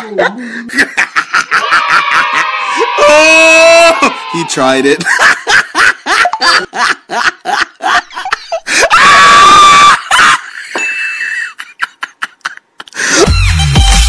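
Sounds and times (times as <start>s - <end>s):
people laughing: 0.0s - 13.3s
high-pitched scream: 1.6s - 5.0s, 8.8s - 10.1s.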